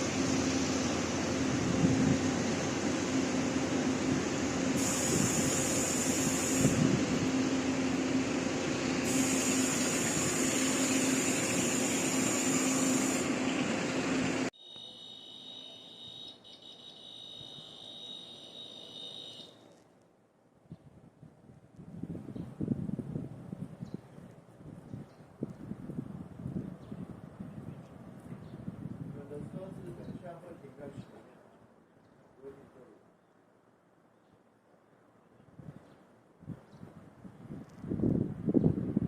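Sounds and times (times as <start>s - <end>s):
high hiss: 0.0s - 7.1s, 8.8s - 14.4s
train engine running: 0.0s - 14.5s.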